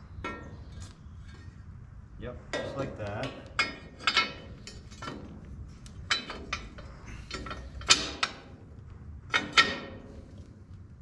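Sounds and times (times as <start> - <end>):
metal parts clanking: 2.6 - 8.6, 9.3 - 10.4.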